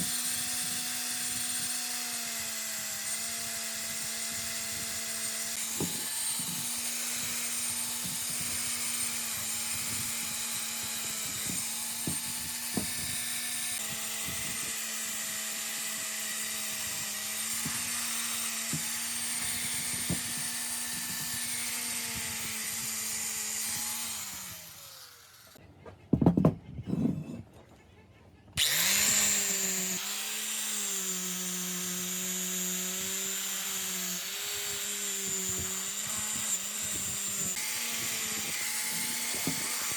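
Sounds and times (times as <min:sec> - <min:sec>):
electric power tool cutting: 0:00.0 - 0:25.6, 0:28.6 - 0:39.9
knocks: 0:26.1 - 0:27.4.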